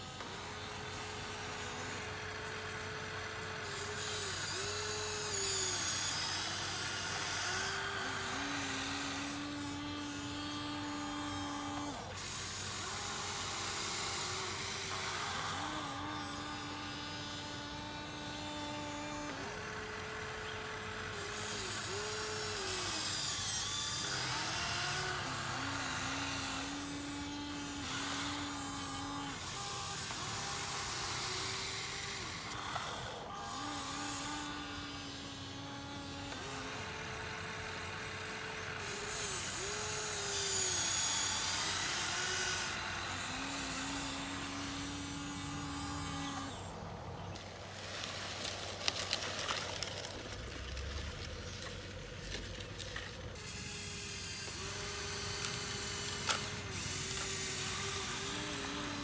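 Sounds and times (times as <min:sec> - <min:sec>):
electric motors whining: 0:00.0 - 0:59.0.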